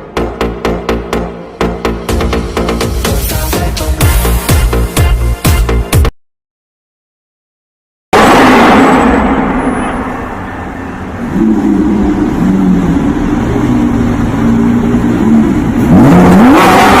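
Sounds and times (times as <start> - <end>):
loud rushing noise: 8.2 - 16.1
sports car engine revving: 11.2 - 17.0.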